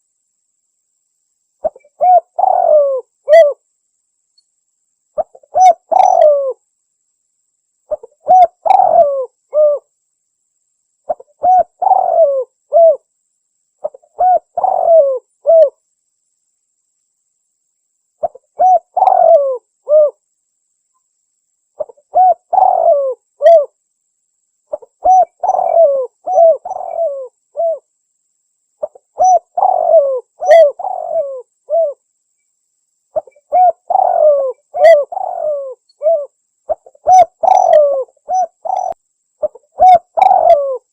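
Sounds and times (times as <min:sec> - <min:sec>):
dove cooing: 0:01.6 - 0:03.6, 0:05.2 - 0:06.6, 0:07.9 - 0:09.9, 0:11.1 - 0:13.1, 0:13.8 - 0:15.8, 0:18.2 - 0:20.2, 0:21.8 - 0:23.8, 0:24.7 - 0:27.9, 0:28.8 - 0:32.0, 0:33.2 - 0:40.9.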